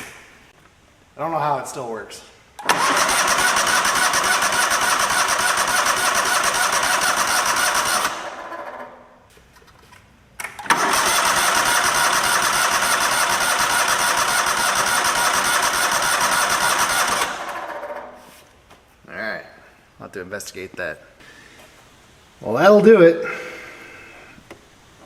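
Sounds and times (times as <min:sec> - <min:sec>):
electric starter cranking engine: 0:02.6 - 0:08.9, 0:10.6 - 0:18.1.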